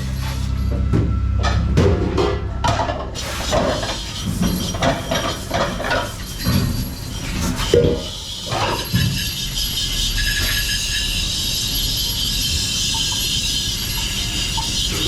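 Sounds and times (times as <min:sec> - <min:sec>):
background music: 0:00.0 - 0:03.4
dishes and utensils clinking: 0:01.4 - 0:09.4.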